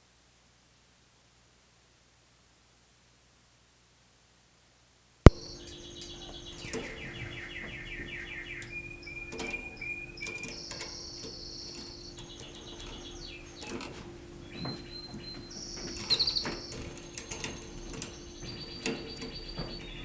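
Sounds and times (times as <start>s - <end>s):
sharp click: 5.3s - 5.8s
canary singing trills: 5.3s - 20.0s
steady low hum: 5.3s - 20.0s.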